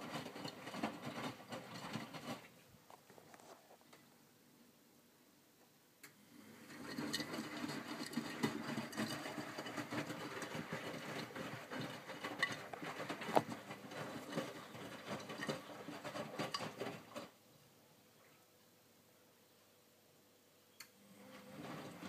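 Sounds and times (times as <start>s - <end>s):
wet laundry sloshing and knocking: 6.9s - 17.3s.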